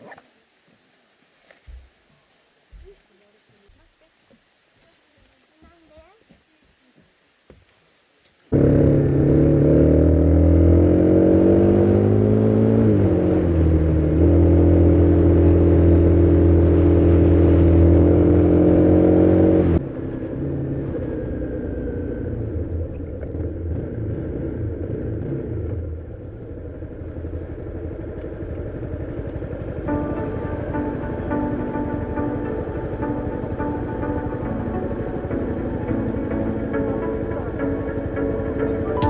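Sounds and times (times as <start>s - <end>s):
rough quiet engine: 8.5s - 10.9s, 20.2s - 39.0s
motorcycle engine running: 8.6s - 39.0s.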